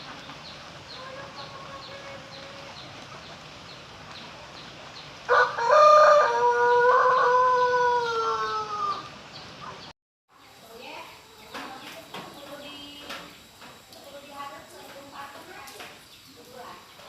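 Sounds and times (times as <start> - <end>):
rooster crowing: 5.3 - 9.1.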